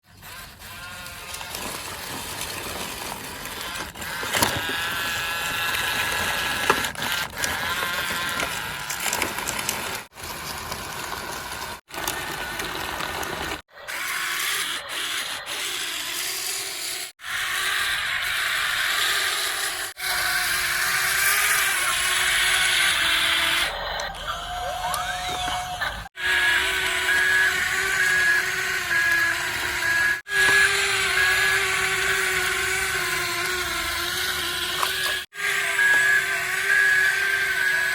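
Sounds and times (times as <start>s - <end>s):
plastic rubbing and scraping: 0.0s - 13.7s, 22.5s - 37.9s
toy electric motors whining: 0.0s - 37.9s.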